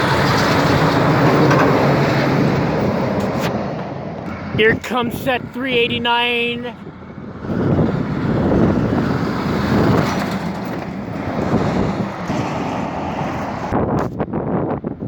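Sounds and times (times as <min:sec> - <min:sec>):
truck driving past: 0:00.0 - 0:05.5, 0:06.7 - 0:13.8
wind buffeting microphone: 0:06.8 - 0:15.0.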